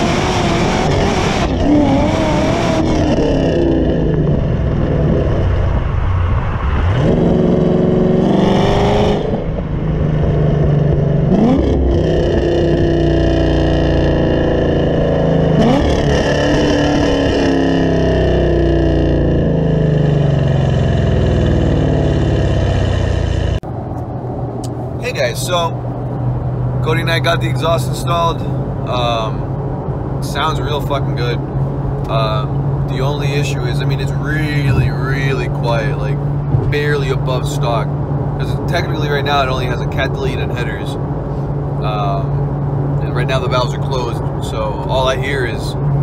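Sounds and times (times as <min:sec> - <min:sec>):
car engine accelerating hard: 0:00.0 - 0:23.6, 0:25.1 - 0:46.0.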